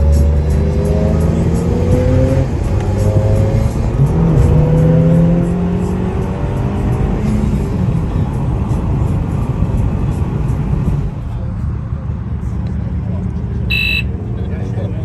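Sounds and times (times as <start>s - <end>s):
music playing: 0.0s - 7.5s, 13.7s - 14.2s
car engine accelerating: 0.0s - 15.0s.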